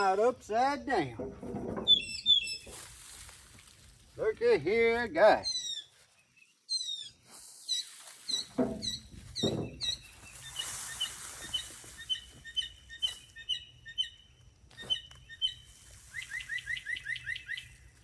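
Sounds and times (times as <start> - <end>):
songbirds chirping: 0.0 - 2.9, 3.8 - 18.0.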